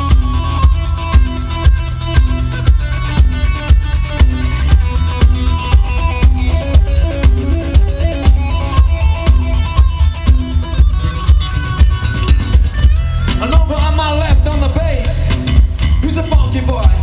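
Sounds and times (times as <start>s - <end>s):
heavy bass guitar: 0.0s - 17.0s
rock band playing: 0.0s - 17.0s
steady drum beat: 0.0s - 17.0s
wavering lead guitar line: 0.0s - 17.0s.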